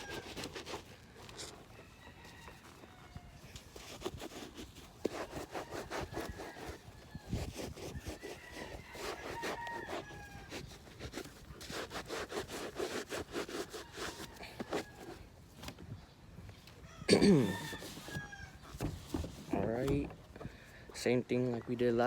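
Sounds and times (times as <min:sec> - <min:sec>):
wet sponge scrubbing a sneaker: 0:00.0 - 0:02.8, 0:03.6 - 0:15.3.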